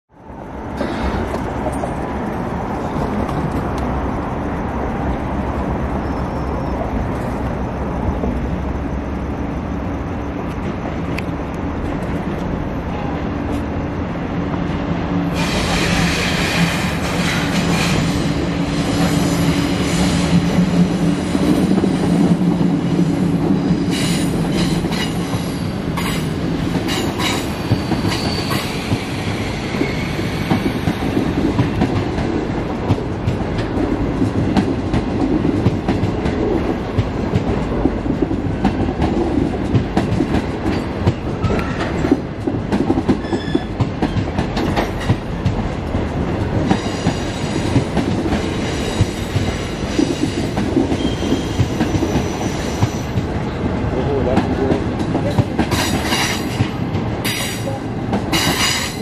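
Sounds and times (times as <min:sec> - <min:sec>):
train rumble with hum: 0:00.1 - 0:59.0
wheel-on-rail rush: 0:00.2 - 0:59.0.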